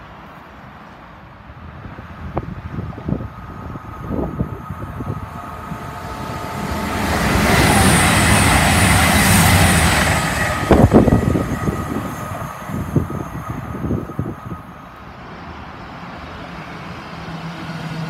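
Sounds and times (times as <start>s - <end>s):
diesel train passing roar: 0.0s - 18.0s
wind buffeting microphone: 1.5s - 14.9s.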